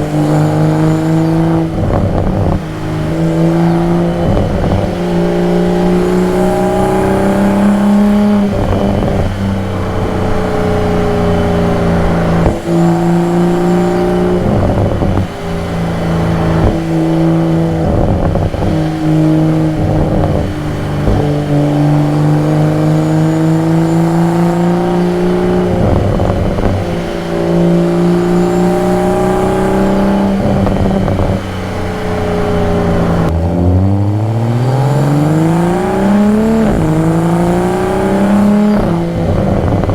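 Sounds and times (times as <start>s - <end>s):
car engine and exhaust: 0.0s - 39.9s.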